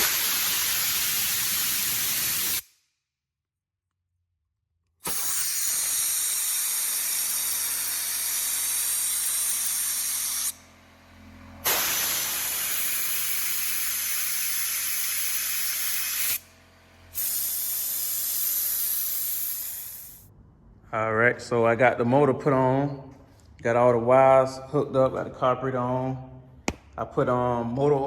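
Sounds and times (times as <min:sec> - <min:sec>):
compressed air hissing: 0:00.0 - 0:02.7, 0:05.0 - 0:10.6, 0:11.6 - 0:16.5, 0:17.1 - 0:20.3.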